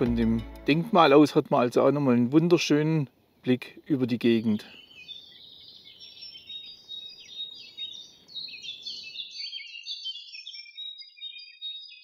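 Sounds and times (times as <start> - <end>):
faint low background noise: 0.0 - 9.0
songbirds chirping and trilling: 0.7 - 12.0.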